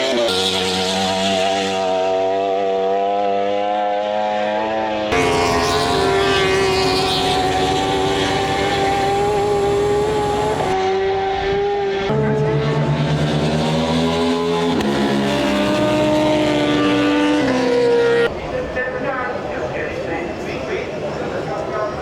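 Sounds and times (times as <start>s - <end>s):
racing motorcycle engines revving: 5.1s - 10.8s, 12.5s - 18.3s.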